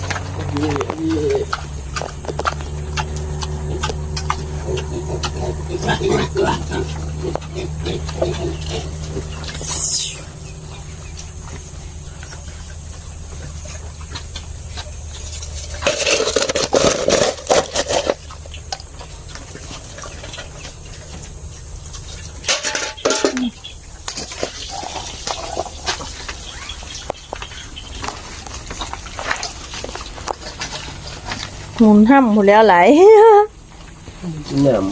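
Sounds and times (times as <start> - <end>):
steady low hum: 0.0 - 34.9
containers clattering: 15.3 - 18.9, 22.4 - 26.1.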